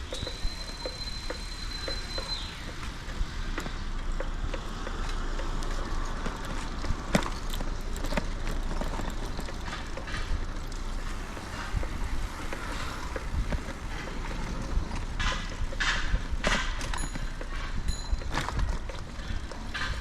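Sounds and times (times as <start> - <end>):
wind rumble on microphone: 8.8 - 20.0.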